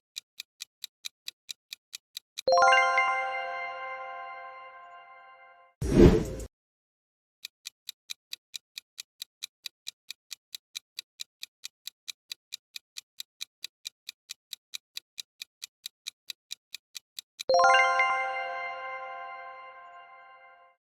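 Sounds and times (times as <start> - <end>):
clock-like ticking timer: 0.2 - 3.2, 7.4 - 18.2.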